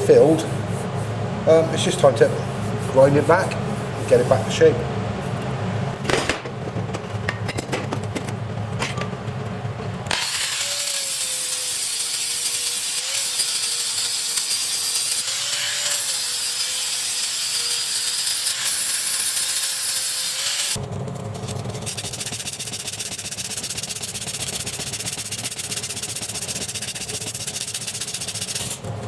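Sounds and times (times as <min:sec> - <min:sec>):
grinder rasping on metal: 0:10.2 - 0:20.8, 0:21.8 - 0:28.8.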